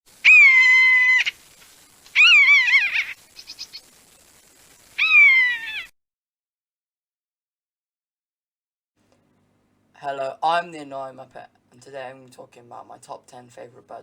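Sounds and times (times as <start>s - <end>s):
bird of prey crying: 0.1s - 1.4s, 2.2s - 3.8s, 5.0s - 5.9s.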